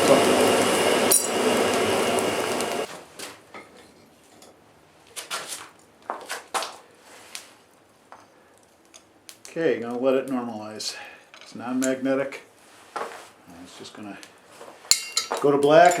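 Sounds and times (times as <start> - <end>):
forge tools clinking: 0.0 - 1.8, 14.9 - 16.0.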